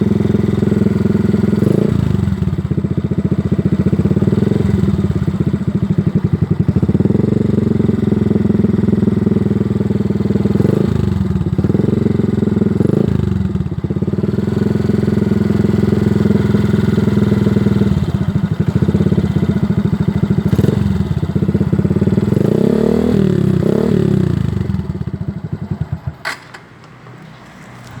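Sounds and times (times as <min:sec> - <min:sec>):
motorcycle engine revving: 0:00.0 - 0:26.4.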